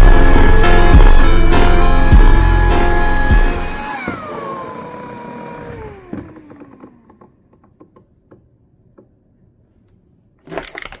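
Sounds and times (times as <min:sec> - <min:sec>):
hair dryer spinning down: 0:00.0 - 0:07.1.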